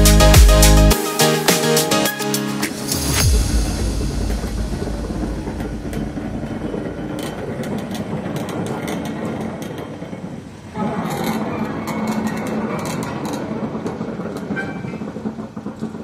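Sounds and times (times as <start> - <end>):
train wheels rumbling on track: 3.2 - 16.0
wheels clicking over rail joints: 5.2 - 16.0.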